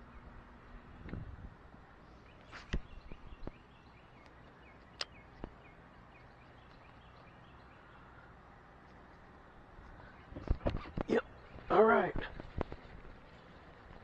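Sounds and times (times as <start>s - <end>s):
sharp clicks: 4.2s - 5.6s.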